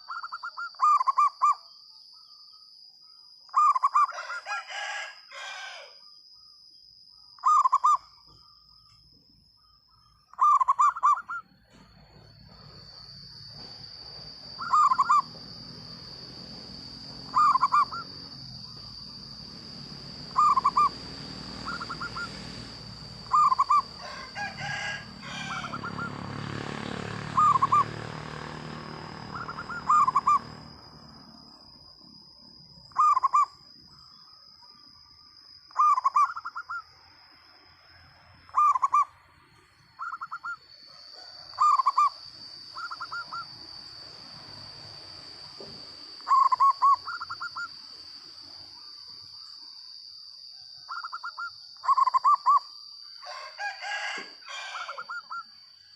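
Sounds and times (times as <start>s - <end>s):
dove cooing loudly: 3.6s - 5.9s, 10.4s - 11.4s, 14.4s - 30.7s, 32.9s - 33.5s, 38.5s - 39.1s, 41.2s - 43.7s, 46.3s - 47.7s, 53.2s - 55.4s
steady high whine: 6.9s - 50.4s.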